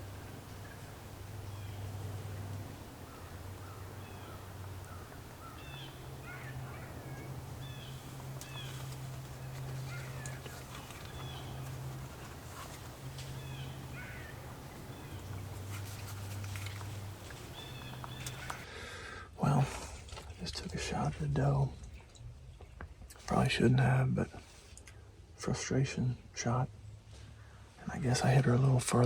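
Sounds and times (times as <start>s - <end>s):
small birds chirping: 0.0s - 18.6s
steady low hum: 0.0s - 18.7s.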